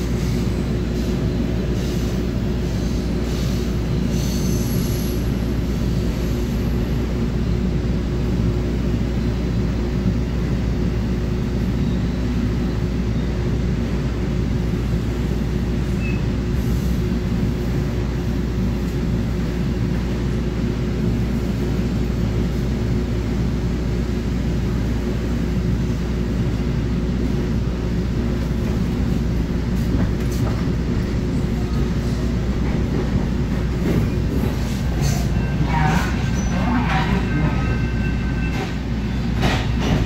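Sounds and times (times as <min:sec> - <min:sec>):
train wheels rumbling on track: 0:00.0 - 0:40.0.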